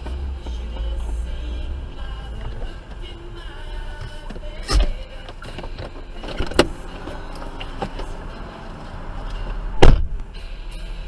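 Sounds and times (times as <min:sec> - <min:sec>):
car rumbling on road: 0:00.0 - 0:11.0
loud collision bang: 0:09.8 - 0:10.2.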